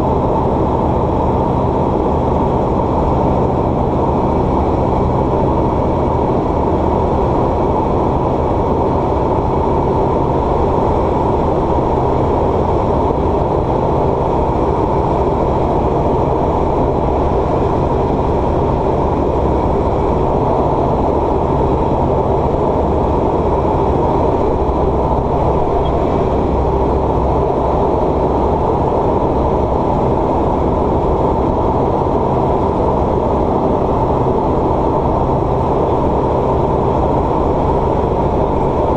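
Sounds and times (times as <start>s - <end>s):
aircraft engine and propeller drone: 0.0s - 38.9s.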